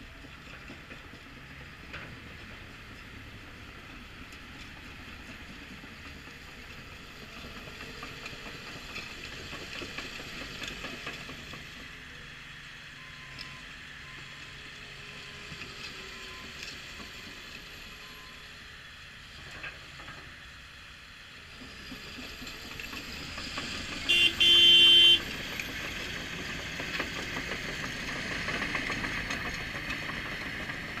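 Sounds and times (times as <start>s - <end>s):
tractor diesel engine running: 21.4s - 31.0s
horn blast: 24.1s - 25.2s.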